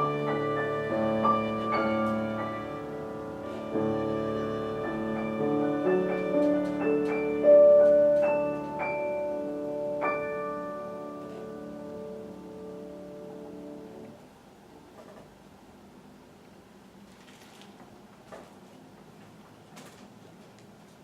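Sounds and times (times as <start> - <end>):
bowed string instrument: 0.0 - 9.9
piano chords: 0.0 - 14.3.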